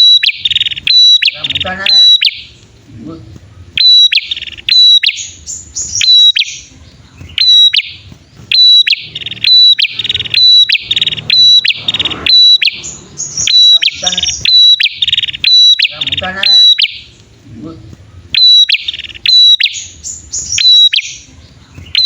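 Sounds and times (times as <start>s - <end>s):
birds calling back and forth: 0.0s - 22.0s.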